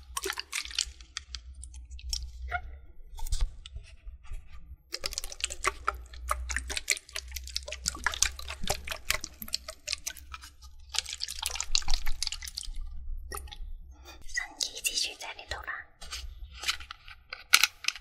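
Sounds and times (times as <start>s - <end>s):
water splashing and dripping: 0.0s - 2.4s, 4.9s - 13.7s
small wet clicks: 0.0s - 2.5s, 4.9s - 18.0s.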